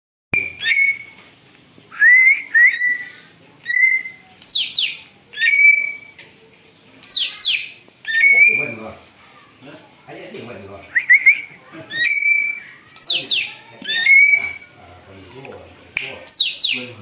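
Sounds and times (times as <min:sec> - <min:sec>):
bird whistling calls: 0:00.4 - 0:01.2, 0:01.9 - 0:06.2, 0:07.0 - 0:08.8, 0:10.9 - 0:14.8, 0:16.3 - 0:17.0.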